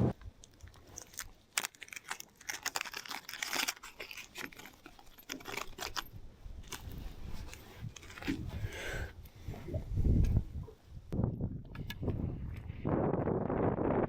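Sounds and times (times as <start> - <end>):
crackling handling noise: 0.1 - 8.7.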